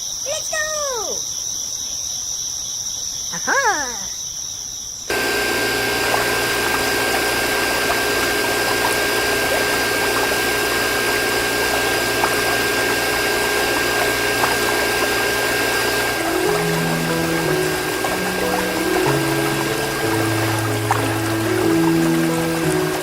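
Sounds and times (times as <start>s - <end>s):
hiss of moving water: 5.1s - 23.0s
water pump motor whine: 5.1s - 23.0s.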